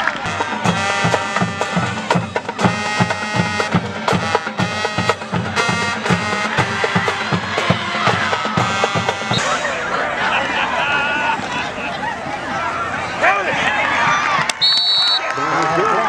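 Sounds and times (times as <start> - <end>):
fast drum beat: 0.0 - 9.6
sustained pitched notes: 0.1 - 10.4.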